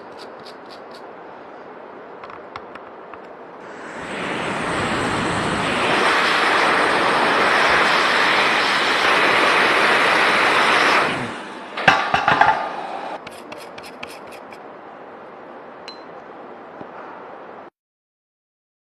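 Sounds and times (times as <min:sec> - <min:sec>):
hot air station hissing: 0:03.6 - 0:14.6.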